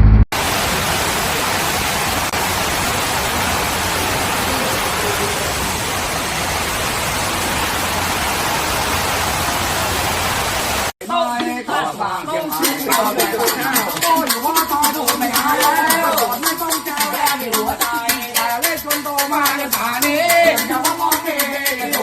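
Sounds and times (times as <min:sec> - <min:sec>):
steady hiss: 0:00.4 - 0:10.9.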